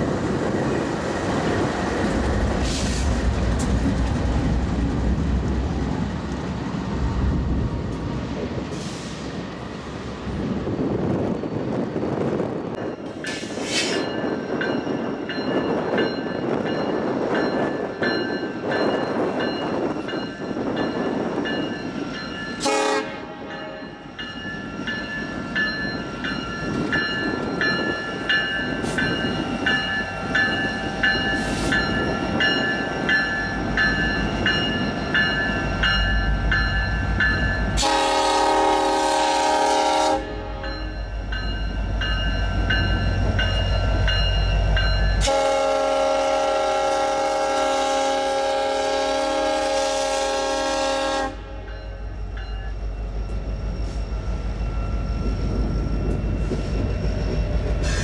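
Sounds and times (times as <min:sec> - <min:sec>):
clatter of train cars: 0:11.0 - 0:21.7
train wheels squealing: 0:12.8 - 0:22.6, 0:51.7 - 0:58.0
train horn blast: 0:22.6 - 0:23.8, 0:37.8 - 0:40.7, 0:45.2 - 0:51.7.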